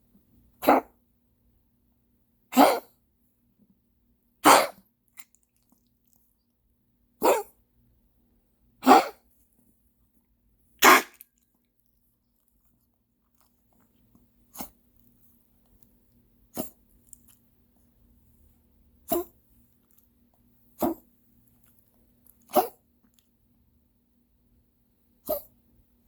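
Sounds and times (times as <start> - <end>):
dog coughing: 0.6 - 1.0, 2.5 - 3.0, 4.4 - 4.9, 7.2 - 7.6, 8.8 - 9.2, 10.8 - 11.2, 16.5 - 16.8, 19.1 - 19.3, 22.5 - 22.8, 25.3 - 25.5.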